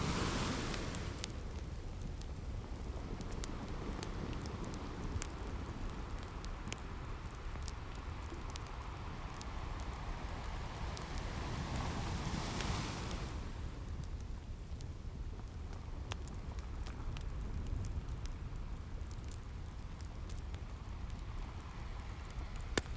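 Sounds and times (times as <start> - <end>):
ocean surf: 0.0 - 1.8, 8.0 - 13.8
wood fire crackling: 0.0 - 22.9.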